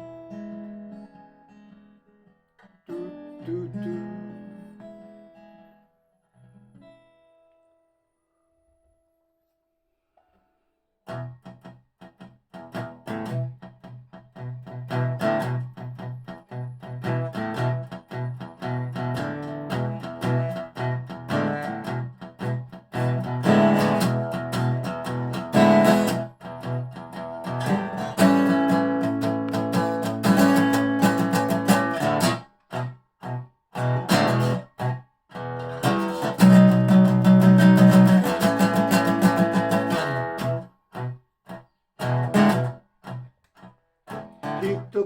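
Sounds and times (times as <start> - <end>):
slide resonator guitar plucking: 2.9 - 5.2, 11.1 - 41.2, 42.0 - 43.3, 44.1 - 45.0.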